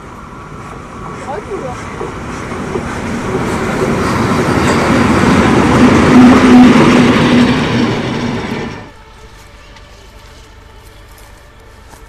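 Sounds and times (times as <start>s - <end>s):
train passing: 0.0s - 12.0s.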